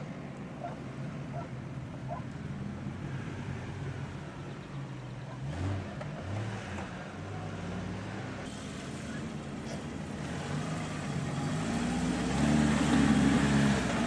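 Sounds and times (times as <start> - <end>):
car engine driving through sand: 5.2 - 14.0.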